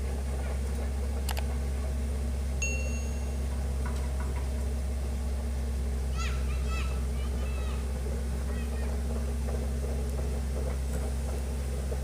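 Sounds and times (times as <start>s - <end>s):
diesel engine idling: 0.0s - 12.0s
short high ping: 2.6s - 3.4s.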